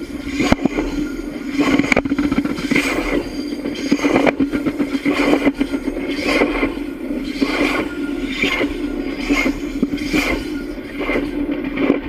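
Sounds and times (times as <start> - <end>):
train wheels clattering on track: 0.0 - 12.0
steady hum: 1.2 - 5.6.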